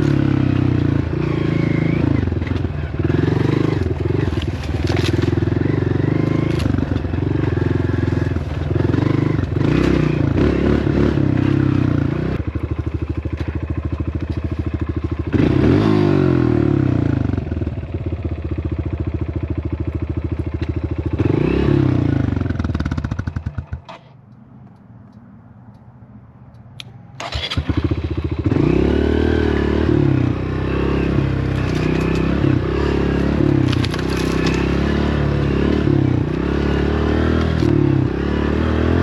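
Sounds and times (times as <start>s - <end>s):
dirt bike engine revving: 0.0s - 12.6s, 15.2s - 17.4s, 21.0s - 23.9s, 27.2s - 39.0s.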